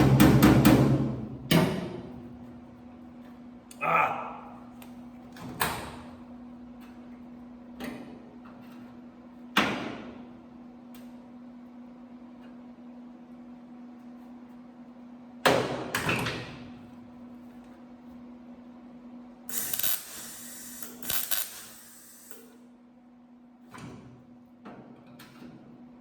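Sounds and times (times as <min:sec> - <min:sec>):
welder crackling: 0:19.5 - 0:22.4.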